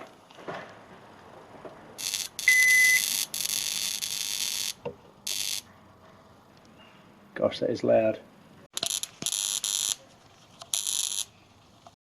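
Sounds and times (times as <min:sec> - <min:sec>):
short high beep: 0:02.5 - 0:03.1.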